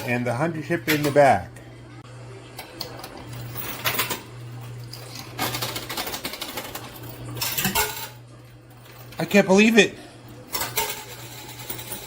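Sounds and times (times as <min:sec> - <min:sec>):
low machine hum: 0:00.0 - 0:12.0
coins clattering in coin pusher: 0:03.3 - 0:08.2, 0:10.5 - 0:12.0.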